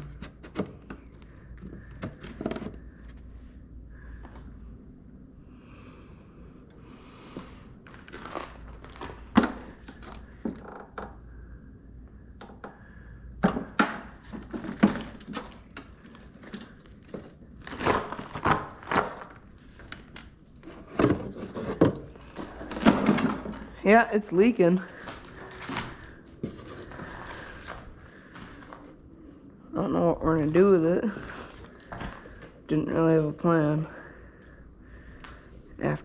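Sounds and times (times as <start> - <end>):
knocks and clunks from handling: 20.7 - 23.7.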